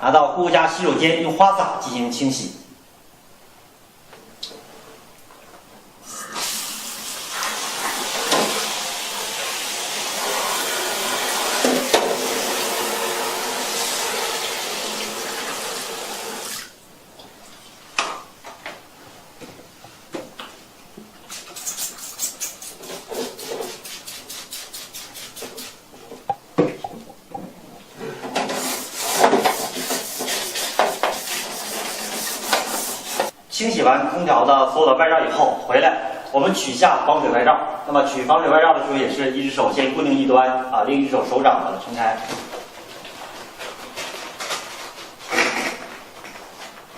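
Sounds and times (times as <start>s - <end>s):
shower head spraying water: 6.2s - 16.6s, 21.6s - 25.8s
rubbing strokes: 21.3s - 26.4s, 28.4s - 33.4s.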